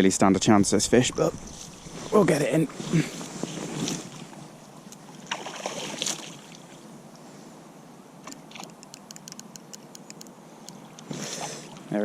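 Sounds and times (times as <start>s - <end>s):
clothing and tackle rustling: 1.3s - 4.5s.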